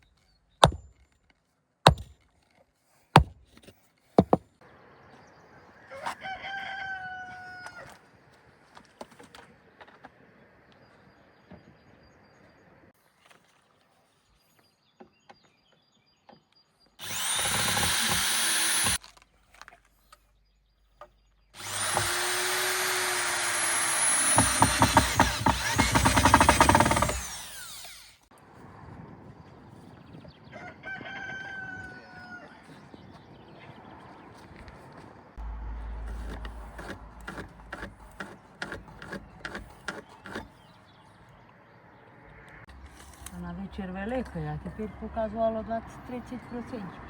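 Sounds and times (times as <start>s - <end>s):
power tool cutting wood: 17.0s - 19.0s, 21.6s - 28.3s.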